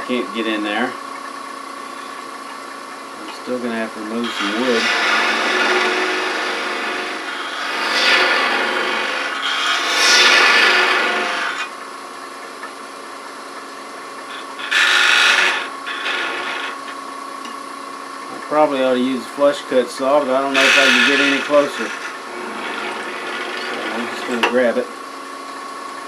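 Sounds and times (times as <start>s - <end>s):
wood lathe humming: 1.8s - 25.8s
gouge cutting spinning wood: 3.2s - 12.8s, 13.6s - 17.6s, 18.6s - 25.4s.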